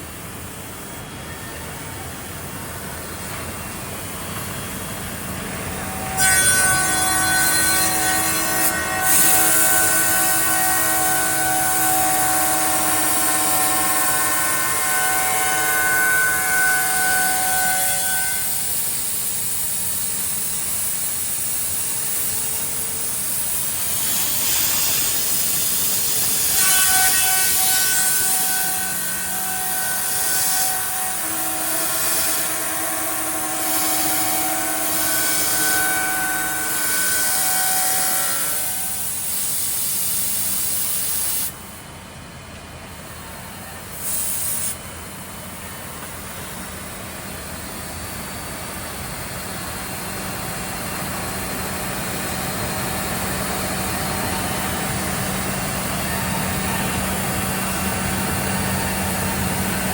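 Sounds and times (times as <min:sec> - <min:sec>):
milling spindle whining: 0:23.5 - 0:39.3.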